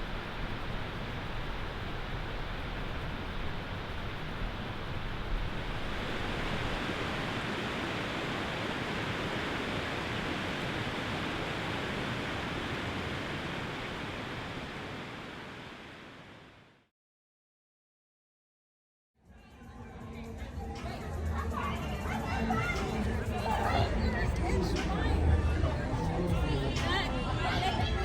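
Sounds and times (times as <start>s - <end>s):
steady rushing noise: 0.0s - 16.8s.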